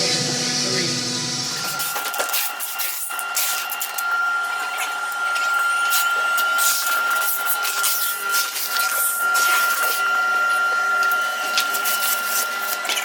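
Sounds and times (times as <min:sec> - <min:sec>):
machine high whine: 0:00.0 - 0:13.0.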